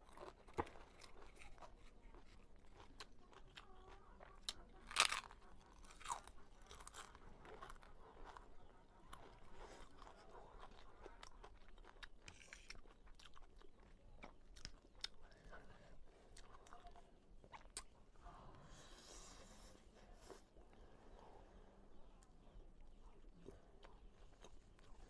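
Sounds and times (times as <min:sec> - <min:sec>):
crunching crisp food: 0:00.0 - 0:15.4.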